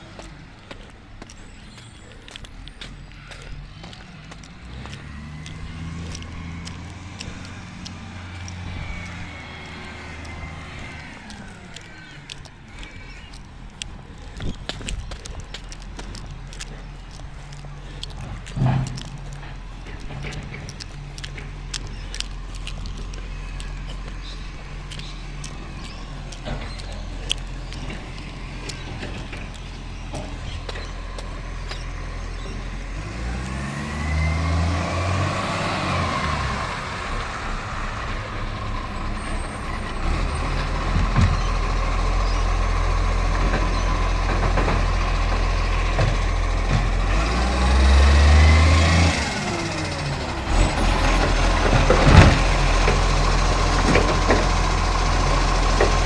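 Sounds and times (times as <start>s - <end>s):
garbage truck diesel engine revving: 0.0s - 56.0s
hydraulics working: 0.0s - 56.0s.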